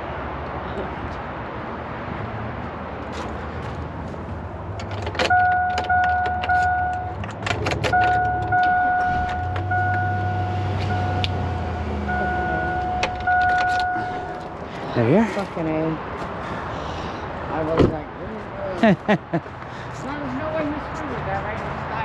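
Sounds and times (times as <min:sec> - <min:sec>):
keys rattling in ignition: 0:04.7 - 0:10.1, 0:12.8 - 0:14.6
vehicle warning chime dinging: 0:05.2 - 0:14.6.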